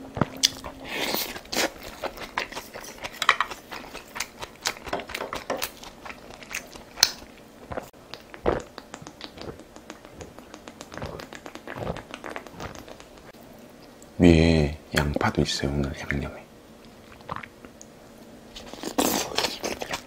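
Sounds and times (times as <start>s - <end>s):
chewing and biting: 0.1s - 13.4s, 18.6s - 20.0s
wet mouth clicks: 6.4s - 14.0s.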